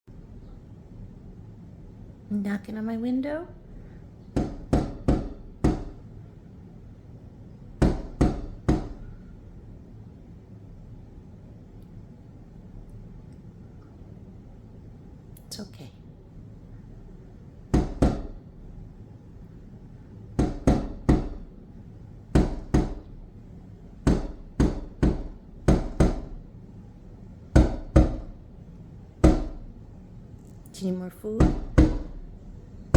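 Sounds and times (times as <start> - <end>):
bird bill knocking on window: 4.4 - 6.0, 7.8 - 9.0, 17.7 - 18.4, 20.4 - 21.5, 22.3 - 23.2, 24.0 - 26.4, 27.5 - 28.4, 29.2 - 29.7, 31.4 - 32.3.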